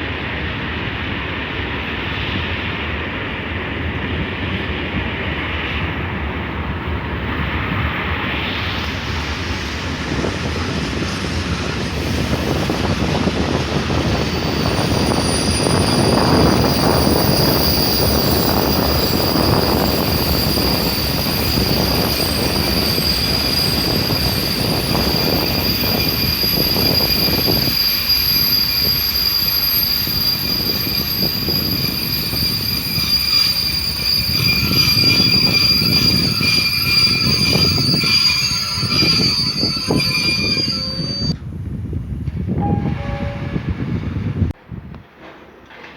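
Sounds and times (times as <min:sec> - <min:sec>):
passenger train rumbling: 0:00.0 - 0:45.9
high-pitched squeal: 0:10.8 - 0:41.4.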